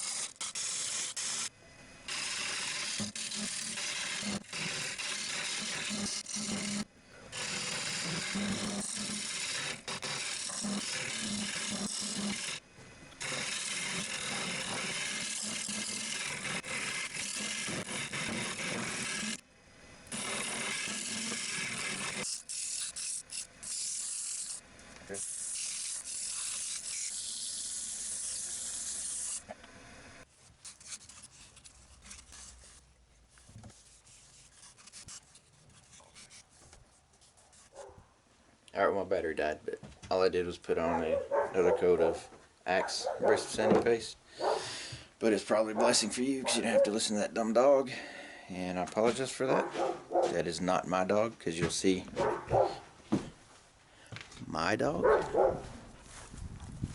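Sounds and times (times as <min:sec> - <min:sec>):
sanding pad rubbing wood on lathe: 0:02.1 - 0:12.6, 0:13.2 - 0:19.4, 0:20.1 - 0:29.4.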